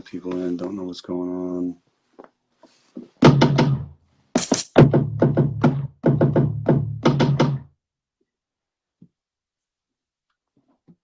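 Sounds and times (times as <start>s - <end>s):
repeated percussive hits: 3.2s - 7.7s.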